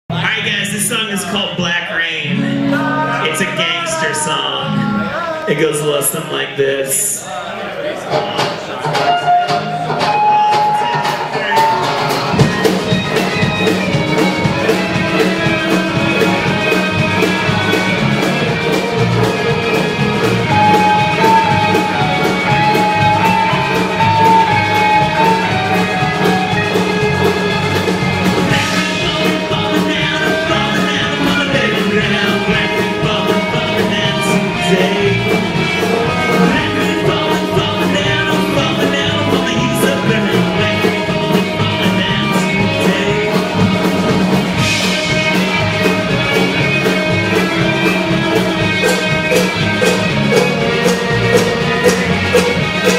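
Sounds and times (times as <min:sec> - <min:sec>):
person singing: 0:00.1 - 0:07.0, 0:28.4 - 0:52.9
live band playing: 0:00.1 - 0:52.9.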